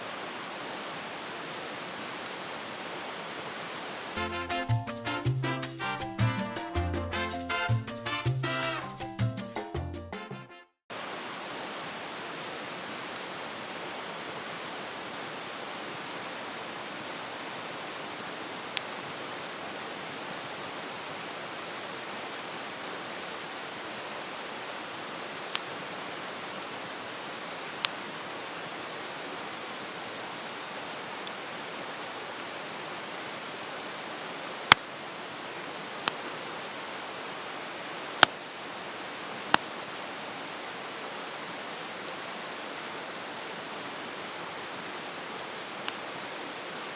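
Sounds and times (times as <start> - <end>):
campfire hissing: 38.0 - 38.4
crackling pops of fire: 38.1 - 38.4, 39.5 - 39.7.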